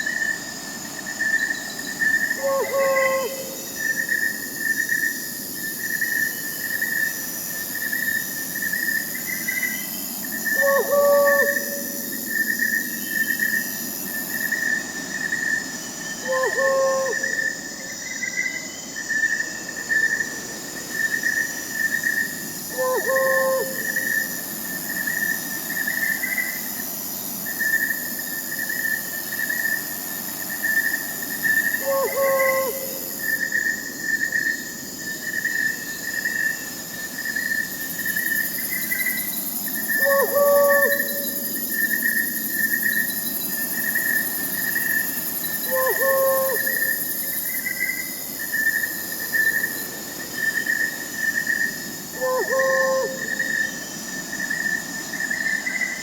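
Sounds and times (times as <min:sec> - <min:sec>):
crickets chirping: 0:00.0 - 0:56.0
high insect hiss: 0:00.0 - 0:56.0
owl hooting: 0:02.4 - 0:03.6, 0:10.5 - 0:12.2, 0:16.2 - 0:17.6, 0:22.7 - 0:24.3, 0:31.8 - 0:33.2, 0:39.9 - 0:41.7, 0:45.7 - 0:47.0, 0:52.2 - 0:53.6.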